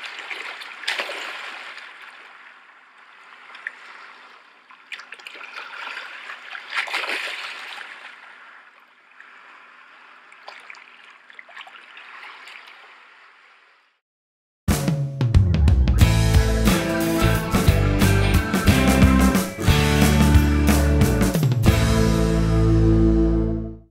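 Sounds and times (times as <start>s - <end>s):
shallow water washing and splashing: 0.0s - 13.8s.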